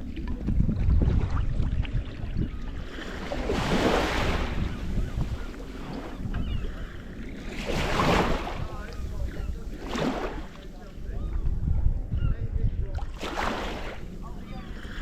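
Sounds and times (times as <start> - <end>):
rush of water: 0.0 - 10.9
wind buffeting microphone: 0.0 - 15.0.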